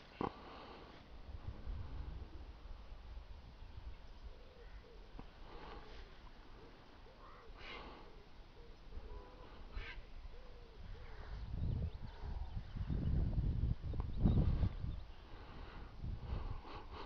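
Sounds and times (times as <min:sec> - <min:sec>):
wind rumble on microphone: 0:01.2 - 0:04.4, 0:08.9 - 0:17.0
bird's low cooing call: 0:04.1 - 0:13.3.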